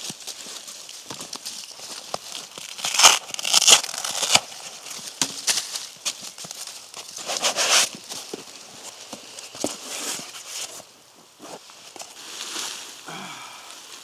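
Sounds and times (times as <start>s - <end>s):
crinkling and rustling: 0.0s - 12.8s.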